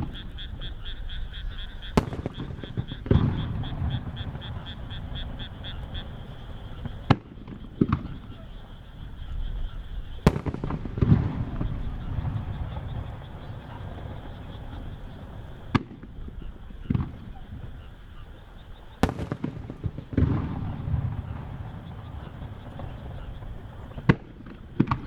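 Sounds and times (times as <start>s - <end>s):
firework sharp crack: 1.8s - 8.8s, 10.2s - 17.3s, 19.0s - 25.0s
firework deep boom: 1.9s - 8.4s, 10.2s - 17.4s, 19.0s - 25.0s.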